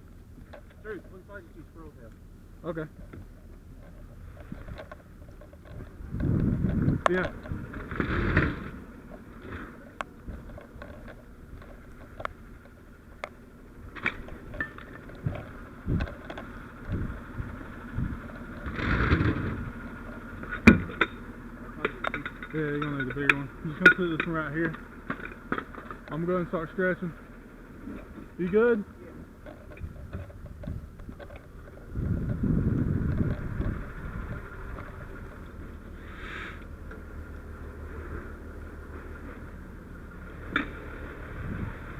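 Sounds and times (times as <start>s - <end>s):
diesel engine idling: 0.0s - 41.9s
short hiss: 36.0s - 36.7s.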